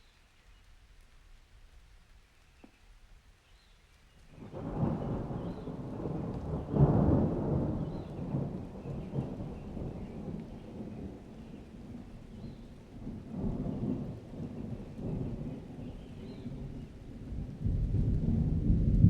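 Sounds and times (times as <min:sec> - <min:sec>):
thunder rumbling: 0:04.3 - 0:19.0.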